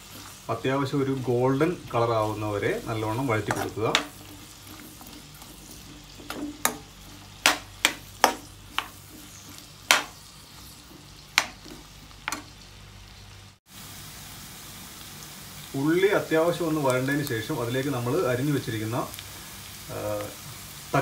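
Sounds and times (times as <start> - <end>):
onions sizzling in oil: 0.0 - 21.0
metal spoon scraping a pan: 2.0 - 12.5.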